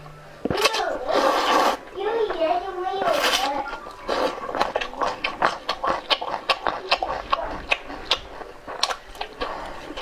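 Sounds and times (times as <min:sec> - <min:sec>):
person chewing with mouth smacking: 0:03.0 - 0:10.0.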